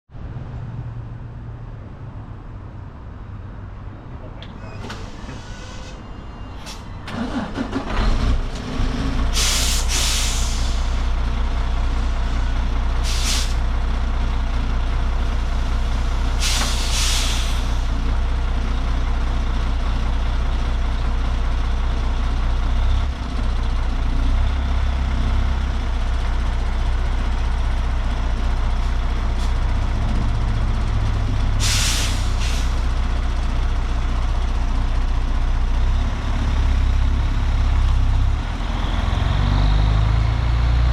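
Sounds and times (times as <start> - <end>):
diesel engine cranking and idling: 1.2 - 40.9
air hiss bursts: 9.4 - 11.0, 13.0 - 13.6, 16.3 - 17.9, 31.6 - 32.8.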